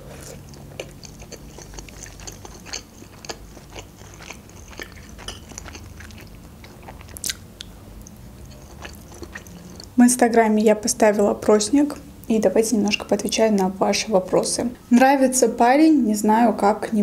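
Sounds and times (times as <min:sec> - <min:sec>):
chewing with wet mouth clicks: 0:00.3 - 0:10.0.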